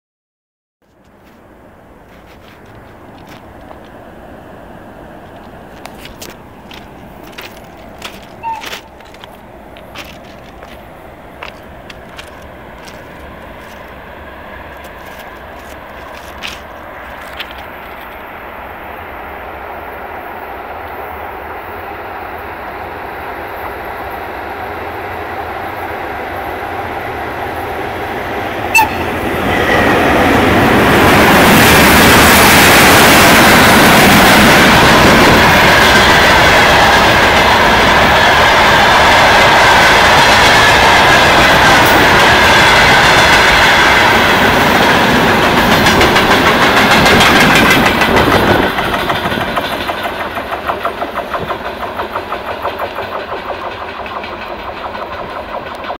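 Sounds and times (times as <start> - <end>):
freight train rumbling past: 1.1 - 55.9
wheels clattering over rail joints: 5.2 - 14.0, 14.6 - 18.3, 28.7 - 55.9.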